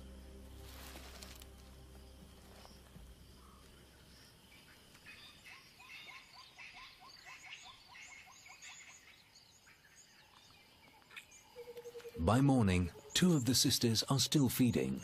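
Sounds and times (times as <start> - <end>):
low hum: 0.0 - 4.2
birds chirping: 1.3 - 15.0.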